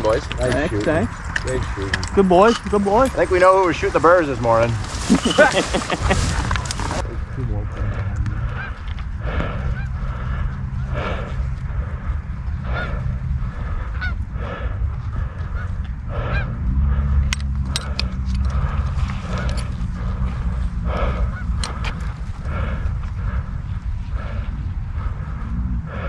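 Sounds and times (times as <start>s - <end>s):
low rumble: 0.0s - 26.0s
geese honking: 2.3s - 7.0s, 8.4s - 17.1s, 18.5s - 23.4s.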